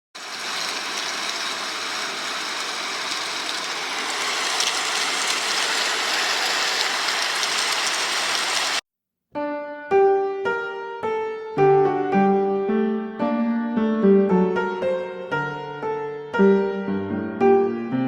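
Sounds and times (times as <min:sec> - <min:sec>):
faint crackles: 0:00.2 - 0:08.8
rain-like rushing noise: 0:00.2 - 0:08.8.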